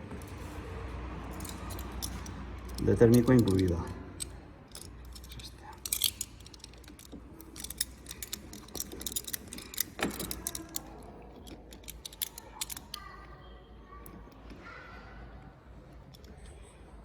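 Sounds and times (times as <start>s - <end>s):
metal parts and tools clinking: 0.0s - 13.2s.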